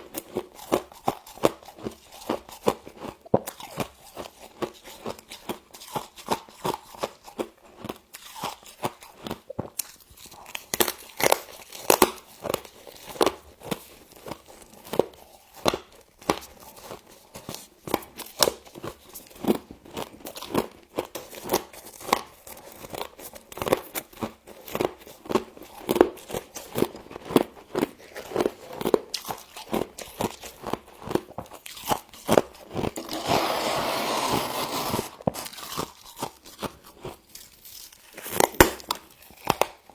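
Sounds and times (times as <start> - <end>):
frost being chewed crunching: 0.0 - 39.9.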